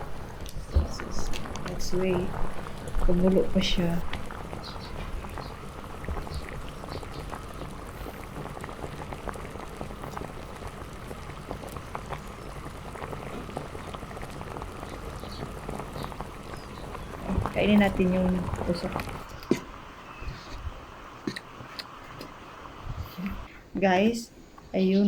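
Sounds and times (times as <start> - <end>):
hotpot boiling with fizzing pops: 0.0 - 24.7.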